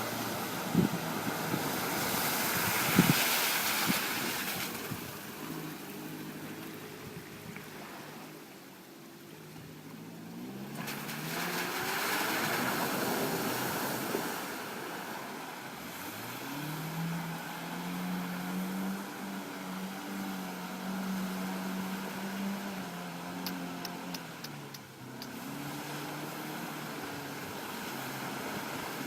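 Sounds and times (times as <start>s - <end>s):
vehicle engine revving: 0.0s - 8.4s, 9.6s - 29.0s.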